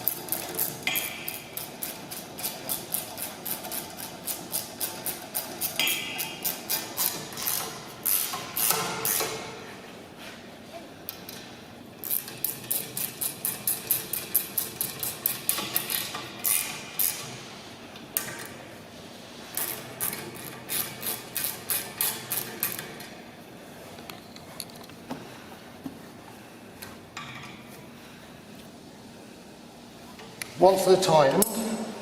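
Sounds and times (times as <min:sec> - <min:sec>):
spanner clicking on bolts: 0:00.0 - 0:09.4, 0:12.0 - 0:17.4, 0:19.5 - 0:23.1.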